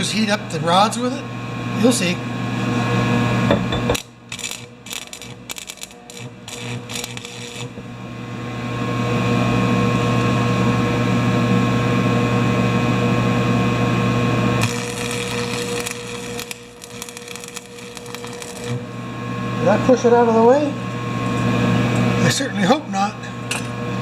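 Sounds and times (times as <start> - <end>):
welding arc crackling and buzzing: 3.8 - 7.9, 14.4 - 20.4
welding rod scratchy clicks: 3.9 - 7.8, 14.6 - 18.8.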